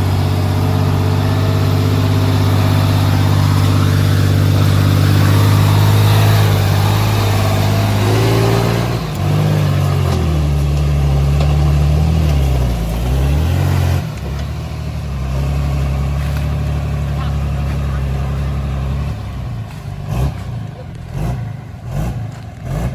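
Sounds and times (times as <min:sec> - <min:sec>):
earthmoving machine engine running: 0:00.0 - 0:14.8.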